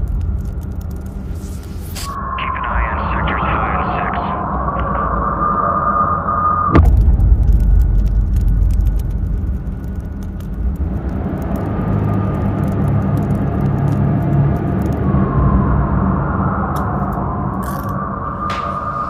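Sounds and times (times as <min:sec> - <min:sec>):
clicks and crackles: 0:00.0 - 0:02.2, 0:06.8 - 0:15.1
heavy low rumble: 0:00.0 - 0:19.0
sudden loud hit: 0:06.7 - 0:07.8.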